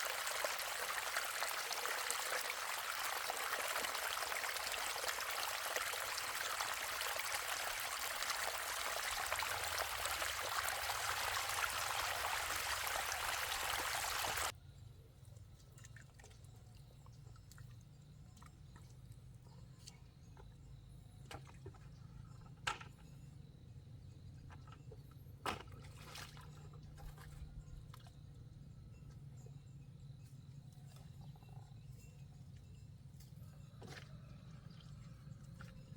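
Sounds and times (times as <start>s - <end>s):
water pouring: 0.0s - 14.5s.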